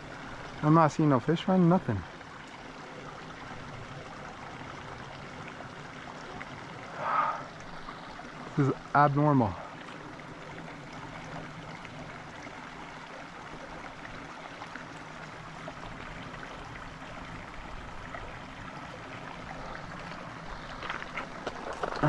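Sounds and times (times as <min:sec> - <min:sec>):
creek running over rocks: 0:00.0 - 0:22.0.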